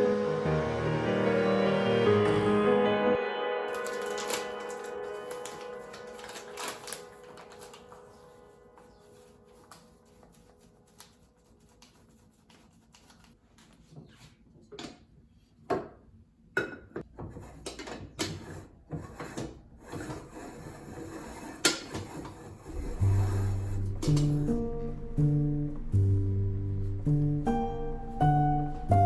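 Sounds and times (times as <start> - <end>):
small objects being handled: 3.7 - 8.2.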